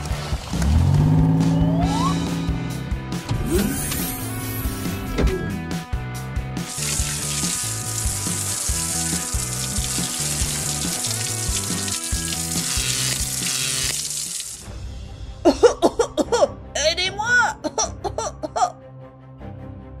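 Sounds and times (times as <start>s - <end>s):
water spraying from hose: 0.0s - 1.0s, 6.6s - 14.7s
background music with bass line: 0.0s - 20.0s.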